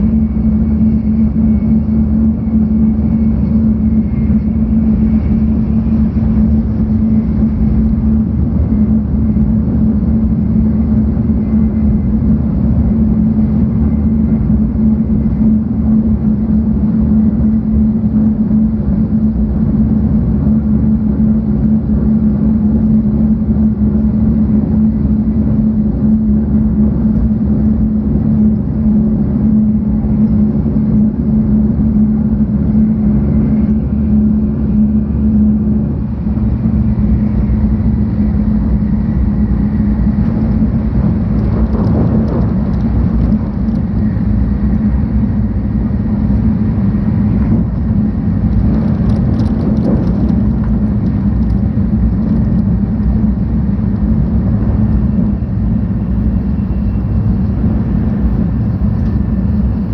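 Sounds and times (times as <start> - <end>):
constant hum: 0.0 - 59.9
train running rumble: 0.0 - 59.9.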